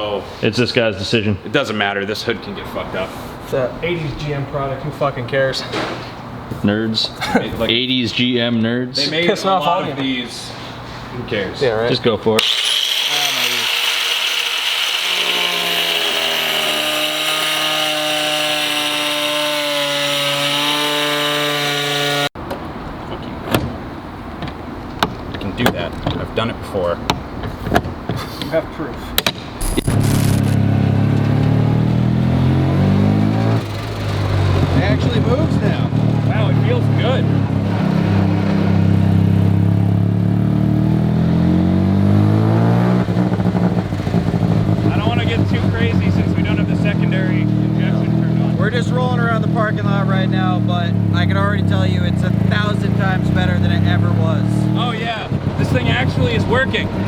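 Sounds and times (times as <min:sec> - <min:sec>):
power tool grinding metal: 0:12.4 - 0:22.4
rotary engine under throttle: 0:12.4 - 0:22.4, 0:29.6 - 0:57.0.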